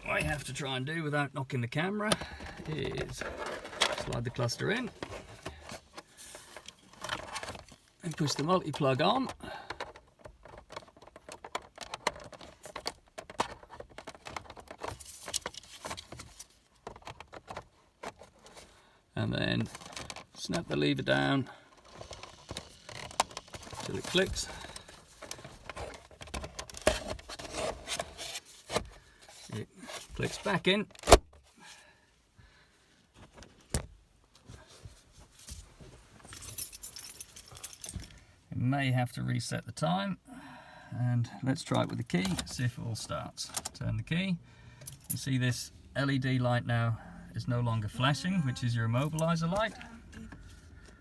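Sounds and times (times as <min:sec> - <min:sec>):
handling noises at dashboard: 0:02.0 - 0:31.5, 0:41.6 - 0:46.2, 0:47.5 - 0:51.0
plastic clicks and rattles: 0:09.7 - 0:18.4, 0:21.7 - 0:27.1
keys jingling: 0:36.2 - 0:38.1, 0:44.8 - 0:45.2.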